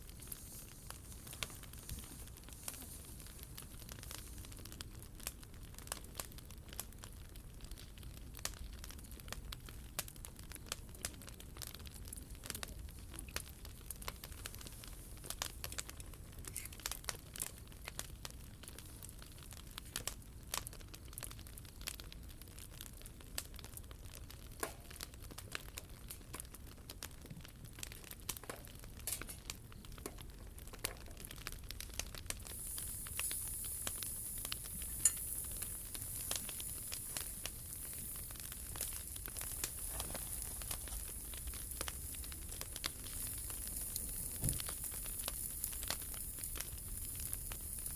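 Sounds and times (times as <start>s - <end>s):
wood fire crackling and popping: 0.0s - 47.9s
steady high hiss: 31.8s - 47.9s.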